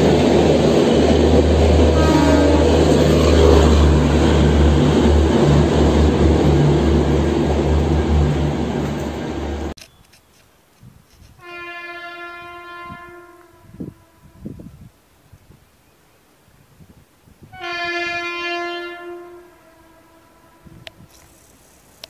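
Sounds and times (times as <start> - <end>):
train passing with rumble: 0.0 - 9.8
train horn blast: 1.8 - 4.4, 11.4 - 14.7, 17.5 - 21.1.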